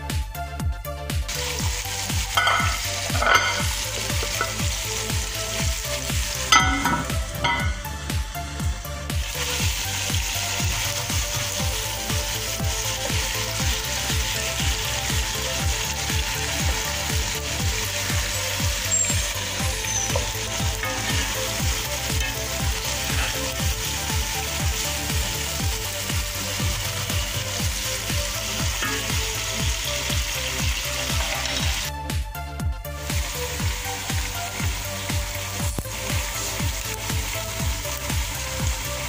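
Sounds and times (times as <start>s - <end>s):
food sizzling in oil: 1.3s - 31.9s, 32.9s - 39.0s
low pulsing beat: 5.8s - 9.3s.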